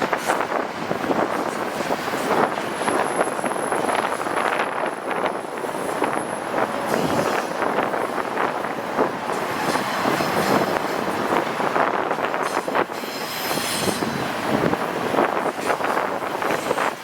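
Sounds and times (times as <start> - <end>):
freight train cars rolling past: 0.0 - 17.0.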